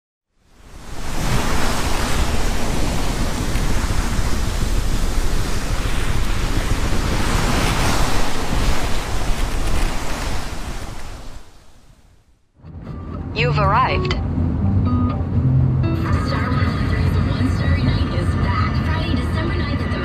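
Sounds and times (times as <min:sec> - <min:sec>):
ocean surf washing: 0:00.4 - 0:12.4
wind buffeting microphone: 0:00.5 - 0:12.2.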